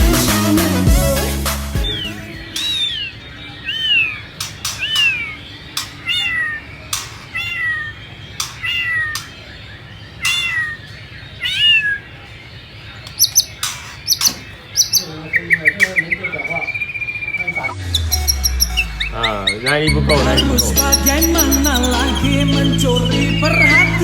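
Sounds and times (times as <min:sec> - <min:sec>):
very high bird notes: 0:00.0 - 0:09.5, 0:13.1 - 0:24.0
bird meow-like notes: 0:01.8 - 0:09.6, 0:10.2 - 0:12.4, 0:13.2 - 0:24.0
sharp clicks: 0:02.5 - 0:03.0, 0:04.3 - 0:06.3, 0:06.9 - 0:07.4, 0:08.4 - 0:09.4, 0:13.0 - 0:15.1.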